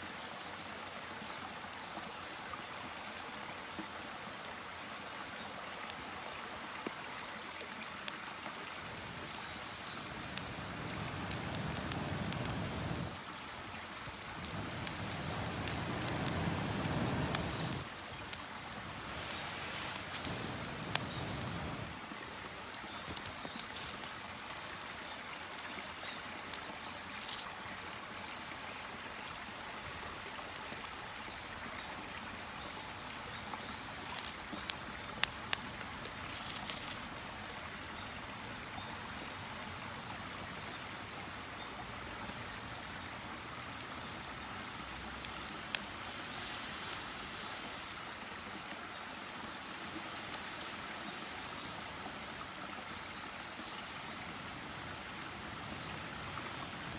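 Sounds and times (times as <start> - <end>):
campfire hissing: 7.5 - 56.9
fire crackling pops: 8.7 - 37.7, 42.2 - 52.2, 54.1 - 56.9.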